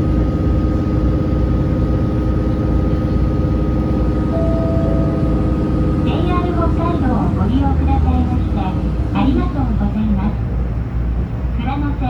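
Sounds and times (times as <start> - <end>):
railcar engine rumbling: 0.0 - 12.0
short steady tone: 4.3 - 6.1.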